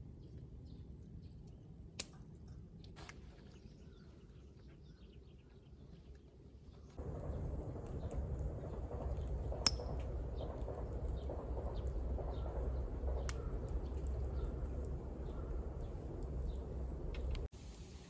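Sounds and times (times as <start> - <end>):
faint crackles: 7.0 - 17.5
wood fire burning: 7.0 - 18.0.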